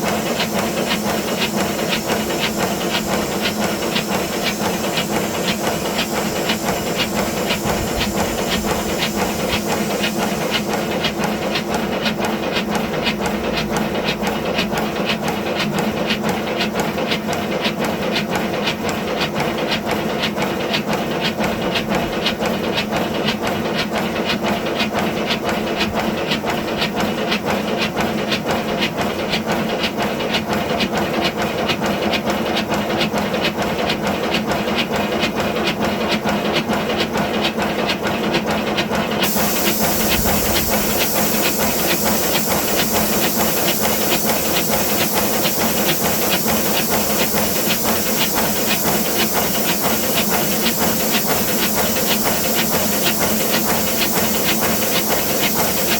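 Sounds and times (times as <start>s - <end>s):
steady steam hiss: 0.0s - 12.2s, 39.2s - 55.9s
steam locomotive exhaust beats: 0.0s - 15.0s, 39.2s - 55.9s.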